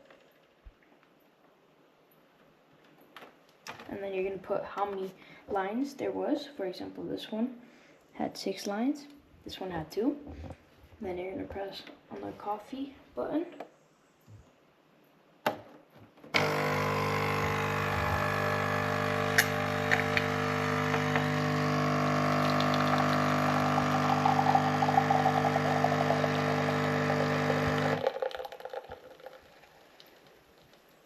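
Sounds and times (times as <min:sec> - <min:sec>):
coffee machine pump buzzing: 0:16.4 - 0:29.0
coffee machine click: 0:19.3 - 0:21.3.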